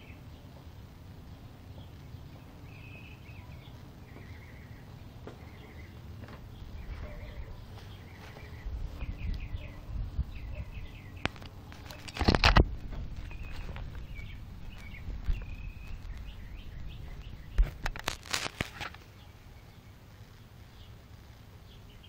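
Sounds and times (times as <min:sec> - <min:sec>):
small birds chirping: 0:00.0 - 0:22.0
phone handling rustle on grass: 0:11.2 - 0:19.2.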